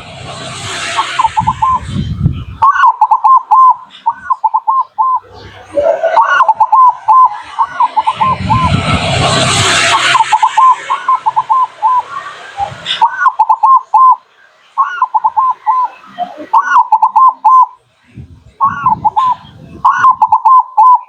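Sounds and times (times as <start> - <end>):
steady hiss: 0.0 - 16.6
dove cooing: 2.6 - 8.7, 10.1 - 14.2, 14.8 - 17.8, 18.6 - 21.0.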